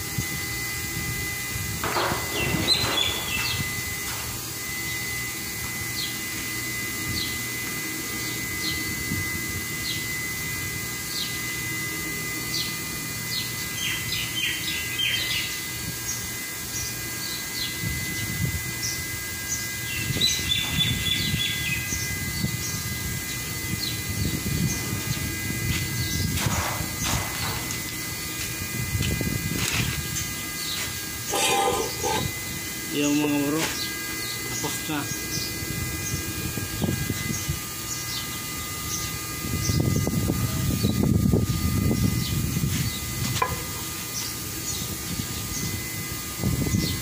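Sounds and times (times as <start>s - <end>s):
faint high whine: 0.0s - 47.0s
small birds chirping: 2.3s - 3.8s, 12.4s - 28.5s, 30.1s - 40.0s, 41.9s - 43.2s, 43.8s - 45.8s.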